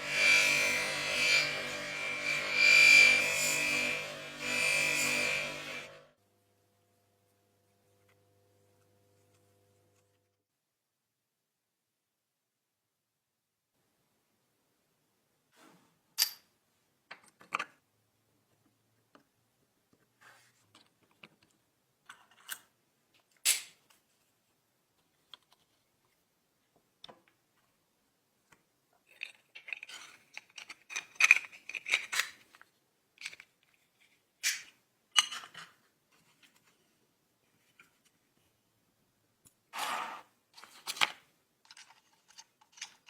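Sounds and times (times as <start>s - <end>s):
small hard parts clicking and scraping: 20.7s - 23.7s, 29.0s - 36.8s, 39.8s - 43.0s.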